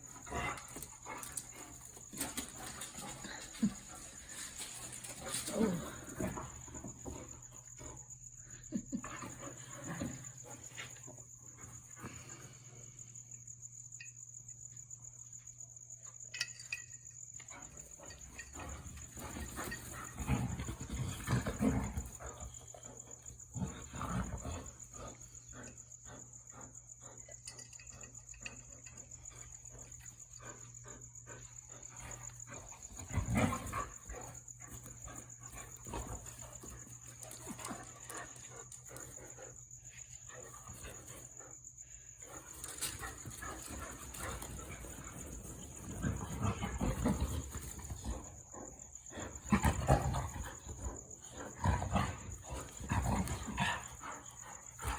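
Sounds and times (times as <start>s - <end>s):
dogs scuffling and pawing: 0.0s - 7.8s, 17.7s - 25.2s, 32.0s - 39.4s, 42.2s - 48.4s, 49.2s - 54.9s.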